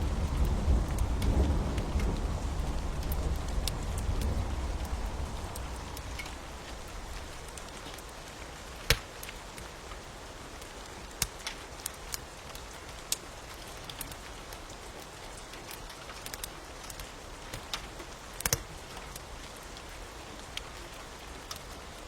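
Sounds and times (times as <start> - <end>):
rain hissing: 0.0 - 9.5
wood fire crackling and popping: 0.0 - 22.0.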